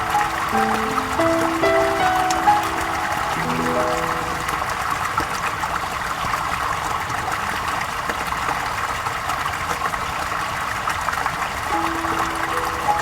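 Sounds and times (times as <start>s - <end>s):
flowing water rippling: 0.0s - 13.0s.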